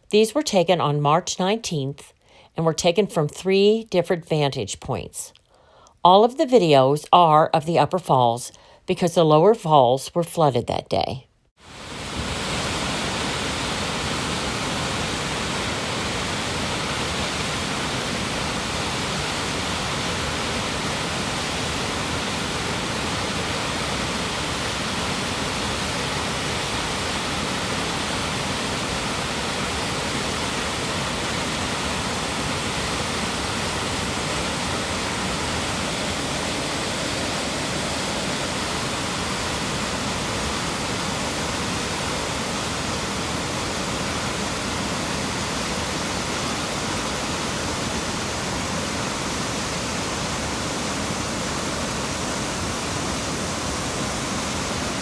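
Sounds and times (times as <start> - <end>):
waterfall rushing: 11.6 - 55.0.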